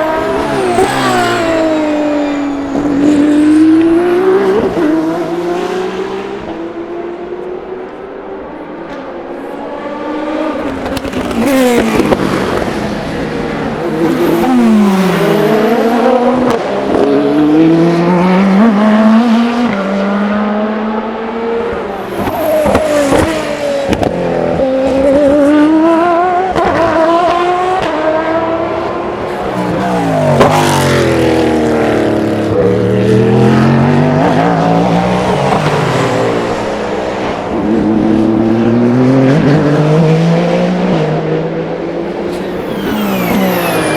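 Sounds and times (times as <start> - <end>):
race car engines braking and accelerating: 0.0 - 43.9.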